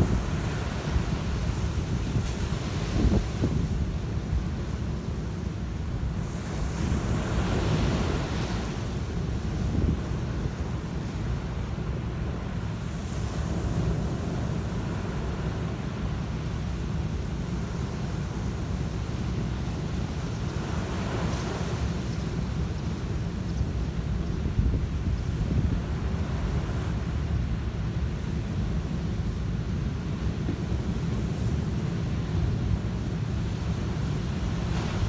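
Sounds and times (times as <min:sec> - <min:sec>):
wind buffeting microphone: 0:00.0 - 0:04.8
sea waves washing onto beach: 0:00.0 - 0:24.2, 0:24.9 - 0:35.0.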